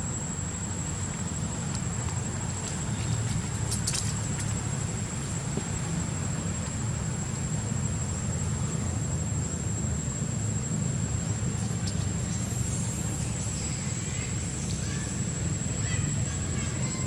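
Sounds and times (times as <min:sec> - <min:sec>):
thin high-pitched whine: 0:00.0 - 0:17.0.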